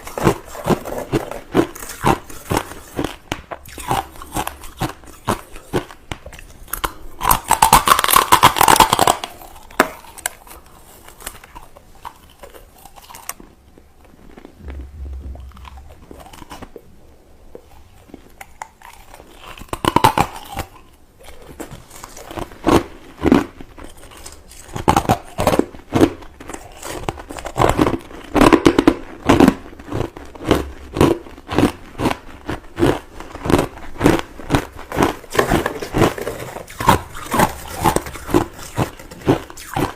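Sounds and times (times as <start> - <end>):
person crunching ice: 0.0 - 13.4.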